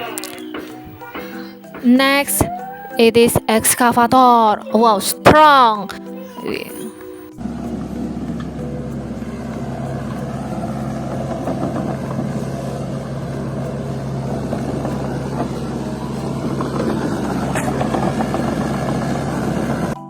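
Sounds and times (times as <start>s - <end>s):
vehicle engine running: 7.4s - 20.0s.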